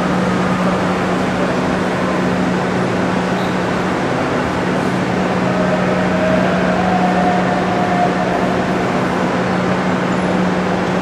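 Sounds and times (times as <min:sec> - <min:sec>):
constant low hum: 0:00.0 - 0:11.0
passing train rumble: 0:00.0 - 0:11.0.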